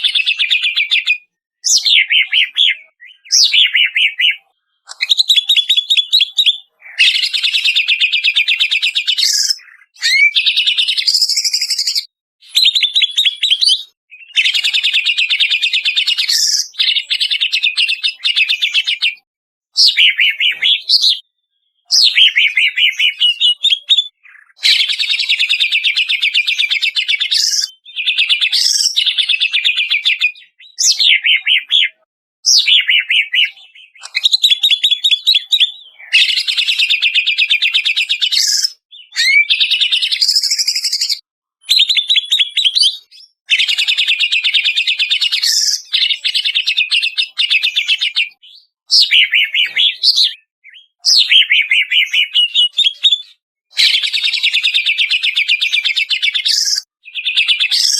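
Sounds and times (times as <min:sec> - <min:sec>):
bird singing rapid chattering phrases: 0:00.0 - 0:57.9.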